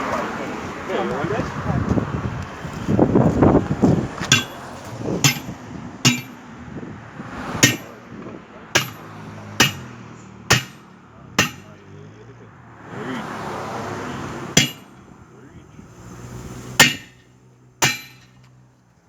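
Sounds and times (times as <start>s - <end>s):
hammer blows on tyre rim: 4.2s - 4.6s, 5.2s - 6.5s, 7.5s - 8.0s, 8.8s - 11.8s, 14.5s - 15.0s, 16.7s - 18.4s.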